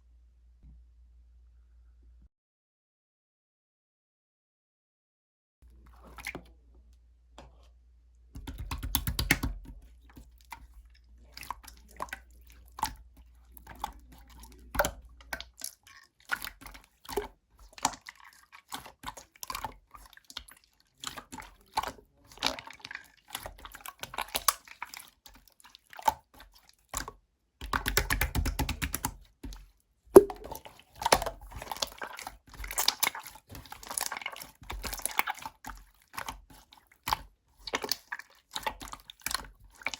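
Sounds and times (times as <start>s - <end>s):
slime squelching and clicking: 8.4s - 39.9s.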